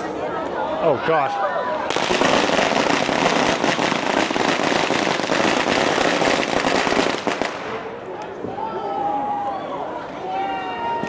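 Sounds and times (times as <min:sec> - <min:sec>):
firecrackers crackling: 0:01.8 - 0:08.2.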